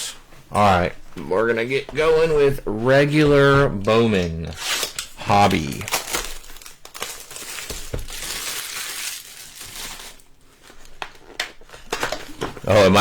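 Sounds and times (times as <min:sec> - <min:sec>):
foil and cardboard crinkling: 0:04.2 - 0:13.0.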